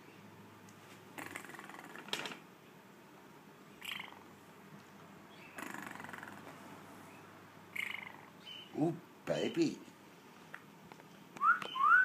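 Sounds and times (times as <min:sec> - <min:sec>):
parrot raspy chattering calls: 0:01.2 - 0:02.1, 0:03.8 - 0:04.3, 0:05.4 - 0:06.5, 0:07.7 - 0:08.8.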